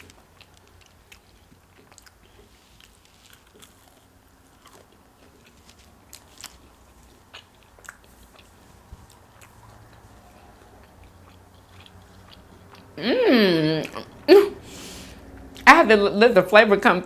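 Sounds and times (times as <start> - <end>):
chewing crispy food crunches: 0.0 - 13.0.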